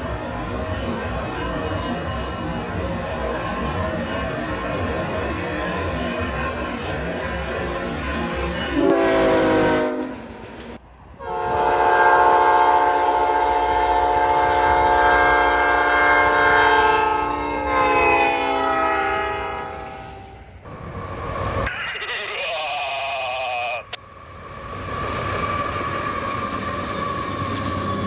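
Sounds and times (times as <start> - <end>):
locomotive air horn blasts: 8.8 - 10.3, 11.2 - 20.4.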